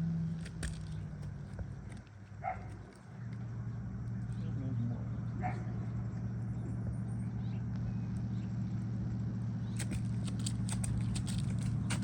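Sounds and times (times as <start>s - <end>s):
low mechanical hum: 0.0s - 12.0s
light scrapes and taps: 9.8s - 12.0s.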